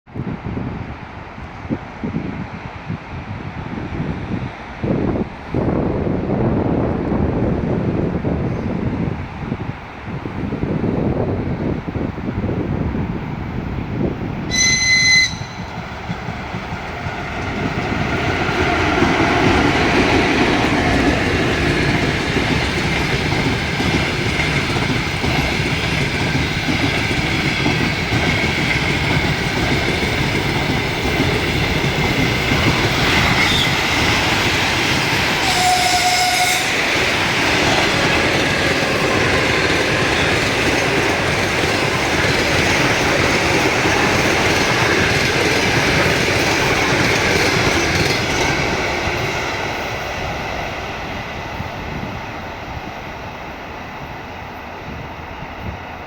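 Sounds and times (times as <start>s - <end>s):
train horn blast: 14.5s - 15.8s, 35.4s - 37.0s
train wheels squealing: 14.5s - 15.8s, 32.6s - 34.4s, 35.0s - 37.0s, 39.9s - 40.9s.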